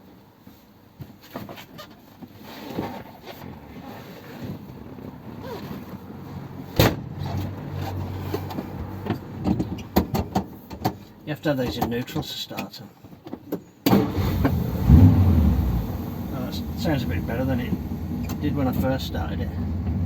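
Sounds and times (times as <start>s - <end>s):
knocks and rustling in car: 6.8s - 12.3s
low steady hum: 14.7s - 20.0s.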